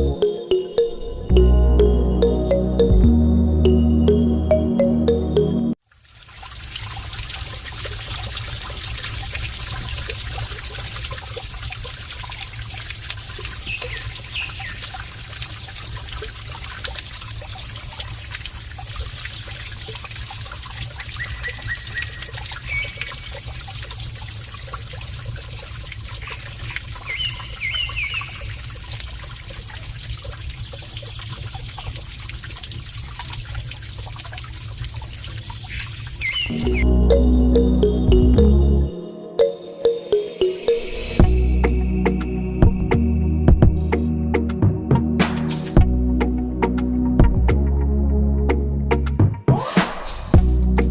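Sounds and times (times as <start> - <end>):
water trickling and pouring: 5.7 - 38.2.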